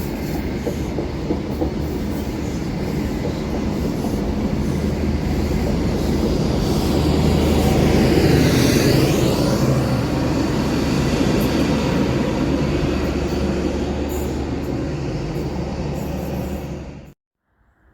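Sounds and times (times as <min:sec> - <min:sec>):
train wheel clatter: 0:00.0 - 0:08.6
train rumbling past: 0:00.0 - 0:17.2.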